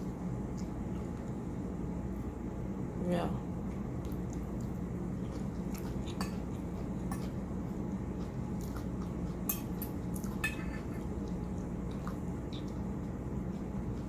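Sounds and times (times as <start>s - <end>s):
steady low hum: 0.0s - 14.0s
cutlery clinking against a dish: 9.5s - 11.1s.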